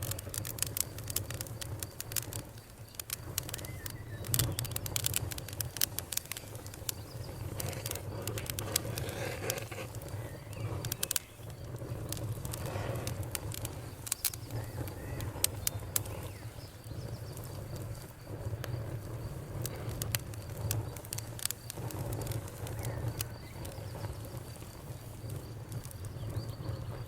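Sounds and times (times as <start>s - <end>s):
bonfire crackling and popping: 0.0s - 27.0s
faint cricket trill: 0.0s - 27.0s.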